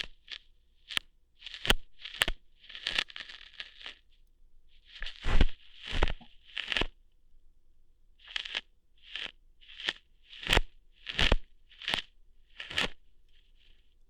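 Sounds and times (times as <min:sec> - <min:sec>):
crackly rustling scrapes: 0:00.0 - 0:07.0, 0:08.2 - 0:14.0
sharp snapping pops: 0:01.0 - 0:03.0.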